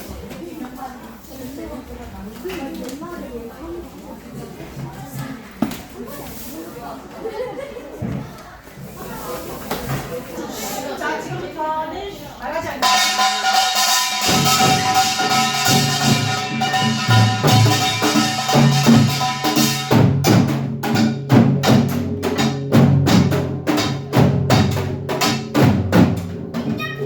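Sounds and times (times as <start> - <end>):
ringing gong stroke: 12.8 - 20.2
low drum beats: 12.8 - 27.0.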